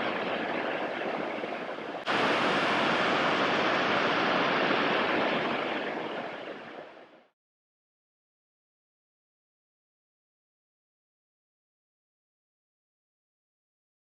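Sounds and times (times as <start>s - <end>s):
waterfall roaring: 1.6s - 7.0s.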